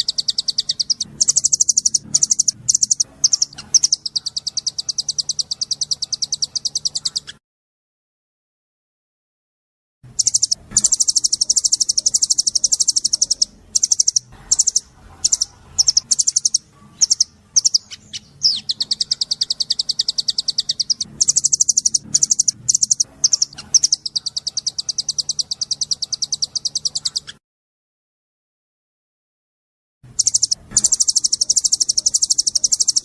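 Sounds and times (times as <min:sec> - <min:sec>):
bird singing rapid high notes: 0:00.0 - 0:07.4, 0:10.1 - 0:27.4, 0:30.1 - 0:33.0
faint low hum: 0:10.0 - 0:27.2.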